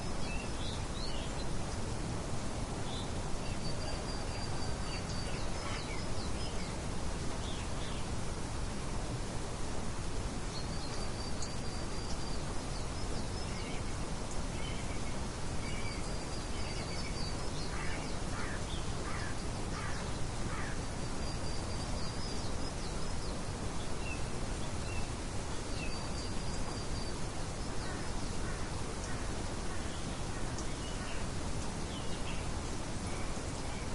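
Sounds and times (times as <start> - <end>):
steady background hiss: 0.0 - 33.9
lower bird calls: 10.5 - 33.9.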